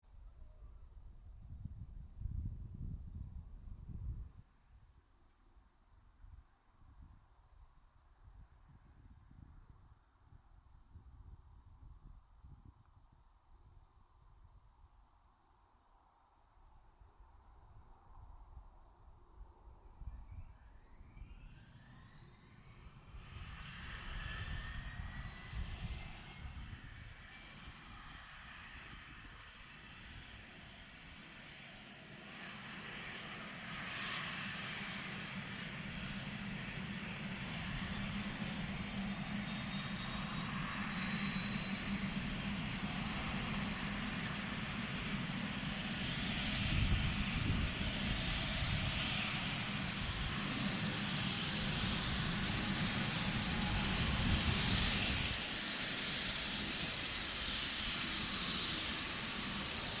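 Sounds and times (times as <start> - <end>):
helicopter turbine whine: 20.0 - 60.0
helicopter rotor noise: 21.7 - 60.0.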